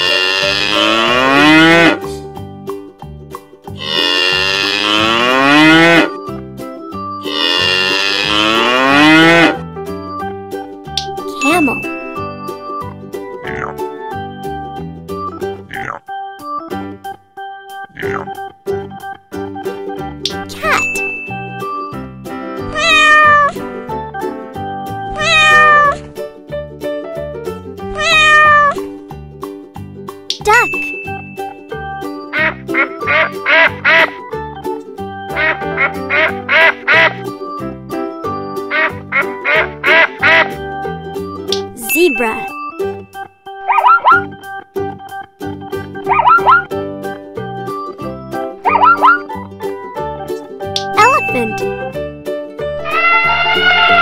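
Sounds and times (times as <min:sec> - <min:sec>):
cow mooing: 0:00.0 - 0:02.0, 0:03.8 - 0:06.1, 0:07.3 - 0:09.6
soft children's music: 0:00.0 - 0:54.0
cat meowing: 0:22.7 - 0:23.5, 0:25.1 - 0:26.0, 0:27.9 - 0:28.8.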